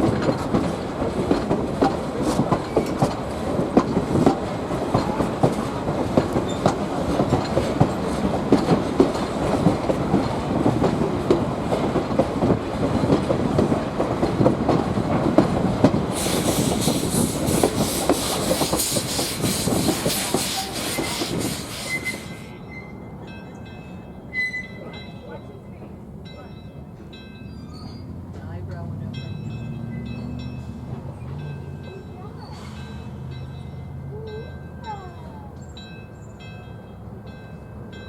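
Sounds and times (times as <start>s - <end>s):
train coach wheels clattering: 0.0s - 38.0s
steam hissing: 15.8s - 22.6s.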